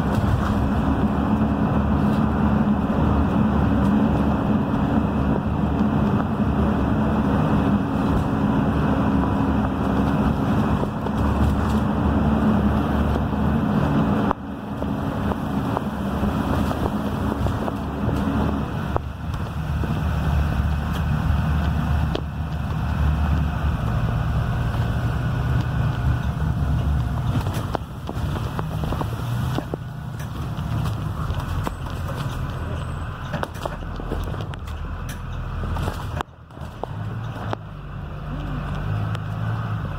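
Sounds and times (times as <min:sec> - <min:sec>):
diesel bus engine running: 0:00.0 - 0:39.9
tyre noise on wet road: 0:00.0 - 0:39.9.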